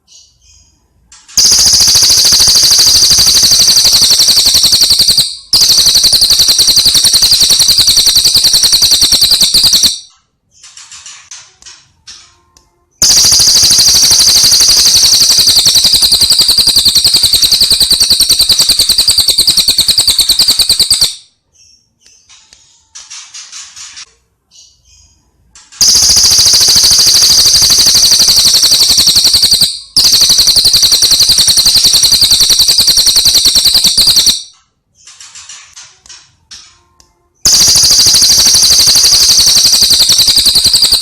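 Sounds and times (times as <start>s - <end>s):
bird rattling trill: 1.4s - 10.1s, 13.0s - 21.2s, 25.8s - 34.5s, 37.5s - 41.0s.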